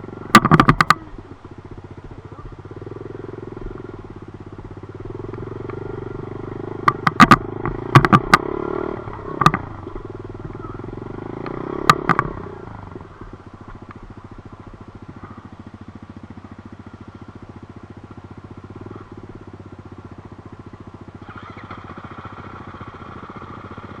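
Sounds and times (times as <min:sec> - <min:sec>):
dirt bike engine running: 0:00.0 - 0:24.0
sharp clacks: 0:00.3 - 0:01.1, 0:06.8 - 0:08.5, 0:09.1 - 0:09.7, 0:11.4 - 0:12.4.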